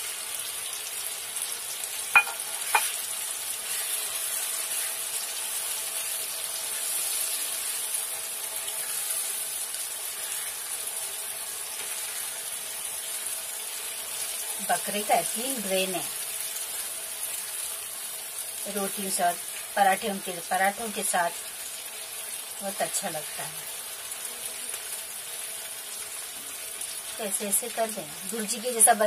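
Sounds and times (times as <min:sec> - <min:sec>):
food sizzling in hot oil: 0:00.0 - 0:29.0
spatula stirring in pan: 0:02.2 - 0:14.6.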